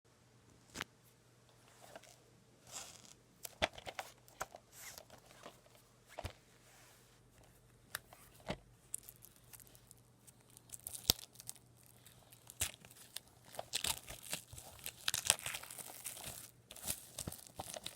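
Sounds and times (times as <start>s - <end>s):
plastic packaging crinkling and tearing: 8.9s - 17.9s.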